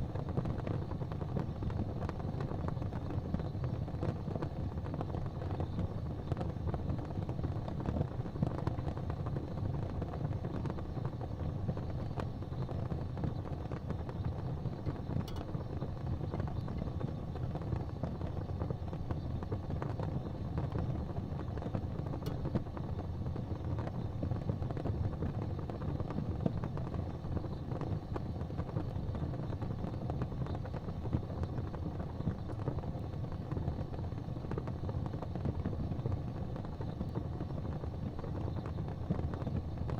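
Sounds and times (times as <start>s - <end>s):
faint fire crackles: 0.0s - 39.9s
fireplace fire rumbling: 0.0s - 39.9s.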